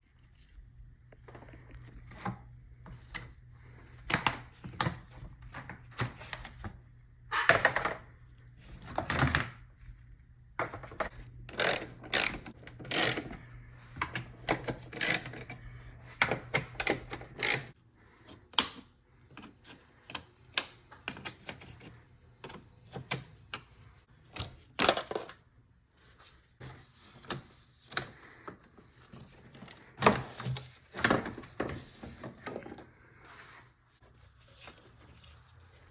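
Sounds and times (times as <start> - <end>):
hand tools clicking and knocking: 10.9 - 13.4, 16.2 - 17.8.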